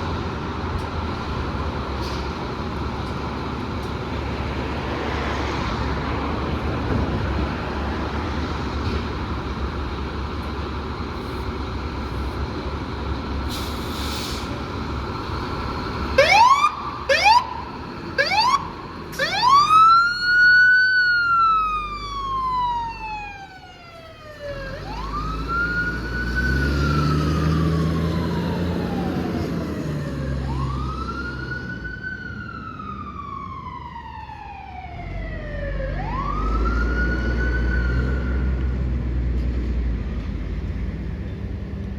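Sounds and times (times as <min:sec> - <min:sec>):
heavy engine rumble: 0:00.0 - 0:31.8, 0:38.6 - 0:41.9
fire truck siren wailing: 0:13.5 - 0:38.6
short rising siren whoops: 0:18.2 - 0:32.0, 0:32.6 - 0:38.4.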